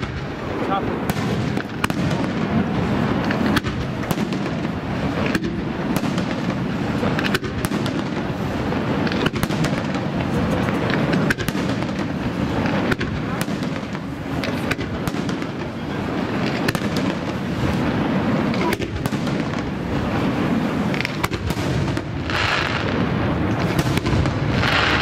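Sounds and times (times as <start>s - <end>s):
dense wash of noise: 0.0s - 25.0s
firework shells bursting: 0.0s - 25.0s.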